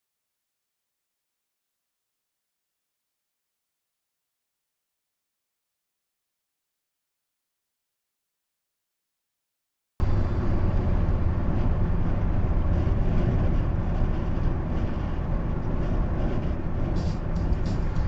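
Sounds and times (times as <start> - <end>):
car road and engine noise: 10.0 - 18.0.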